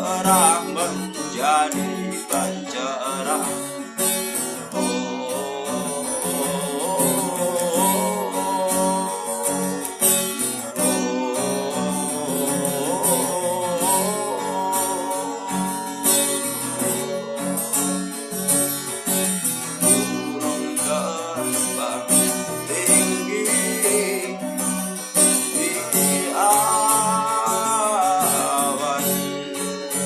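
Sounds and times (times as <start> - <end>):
sliding melody line: 0.0 - 18.9
acoustic guitar strumming: 0.0 - 30.0.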